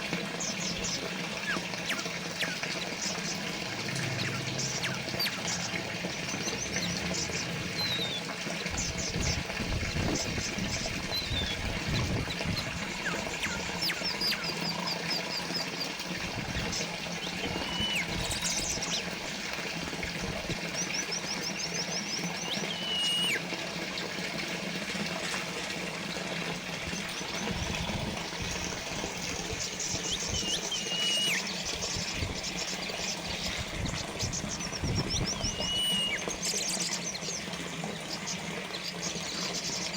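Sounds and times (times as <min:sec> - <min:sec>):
small birds chirping: 0:00.0 - 0:24.1, 0:26.0 - 0:39.9
fountain water trickling: 0:00.0 - 0:39.9.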